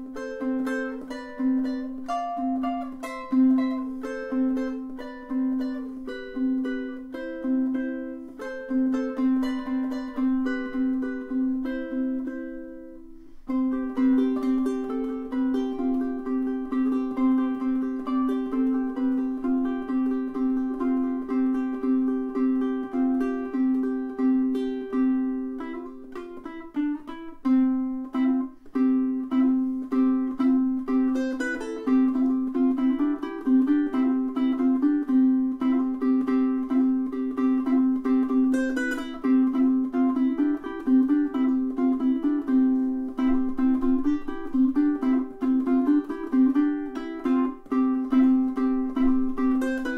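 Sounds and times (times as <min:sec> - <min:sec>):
ukulele plucked notes: 0:00.0 - 0:49.9.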